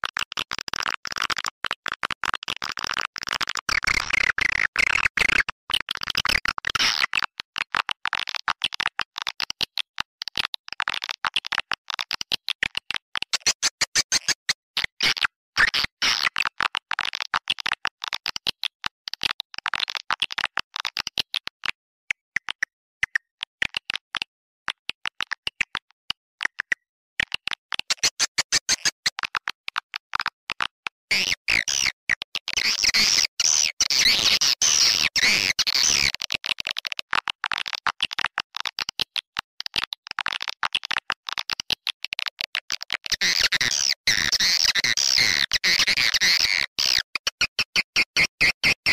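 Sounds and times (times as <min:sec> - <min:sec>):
swiftlet twittering chirps and clicks: 0:13.3 - 0:14.6, 0:27.9 - 0:29.1.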